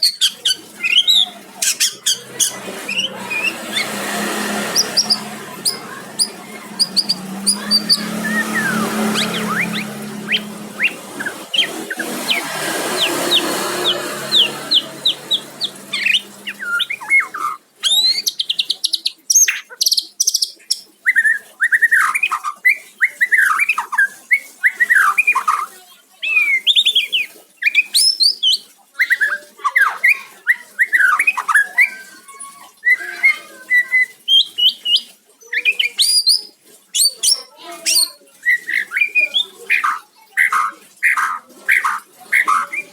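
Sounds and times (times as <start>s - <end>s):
bird whistling song: 0.0s - 4.1s, 4.7s - 25.5s, 32.9s - 42.9s
bird chirping: 0.0s - 21.9s.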